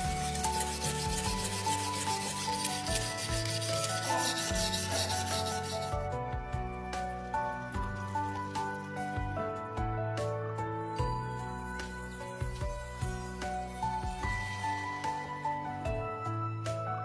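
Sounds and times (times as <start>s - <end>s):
abrasive rubbing strokes: 0.0s - 6.1s
background music: 0.0s - 17.0s.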